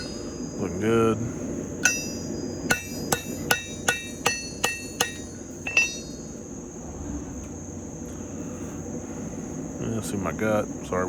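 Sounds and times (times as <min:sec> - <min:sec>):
hammer ringing on anvil: 0:00.0 - 0:00.6, 0:01.8 - 0:06.4.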